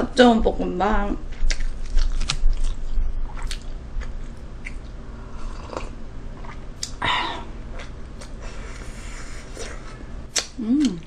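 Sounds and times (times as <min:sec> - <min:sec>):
low steady hum: 0:00.0 - 0:11.0
chewing and biting food: 0:01.3 - 0:07.0.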